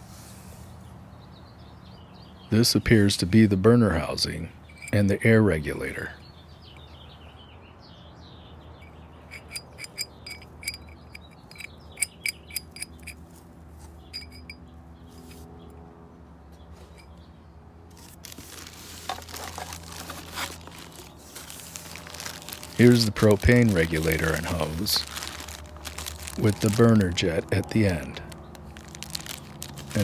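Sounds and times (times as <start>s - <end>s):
metallic clicks and clinks: 9.3s - 13.2s, 14.1s - 14.6s
plastic wrap crinkling: 18.0s - 30.0s.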